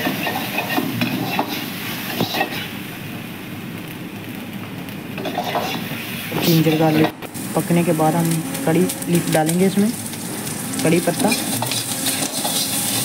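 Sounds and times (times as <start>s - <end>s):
steel ladle scraping a pan: 0.0s - 2.7s, 5.2s - 7.1s, 11.2s - 13.0s
garlic sizzling in hot oil: 0.0s - 13.0s.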